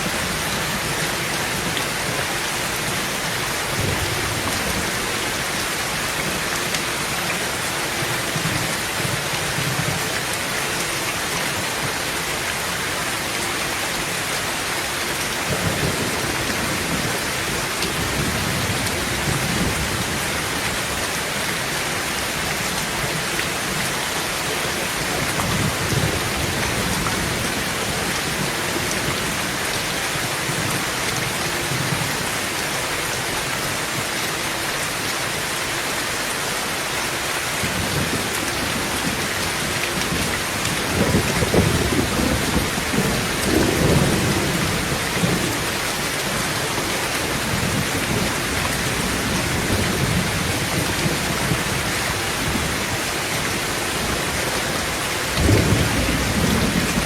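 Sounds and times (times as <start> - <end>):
heavy rain on a tin roof: 0.0 - 57.0
thunder rumbling: 40.0 - 45.7, 54.0 - 57.0.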